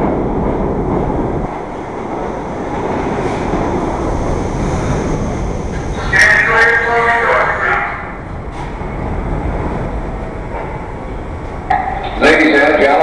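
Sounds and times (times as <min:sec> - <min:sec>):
subway train wheels rumbling: 0:00.0 - 0:13.0.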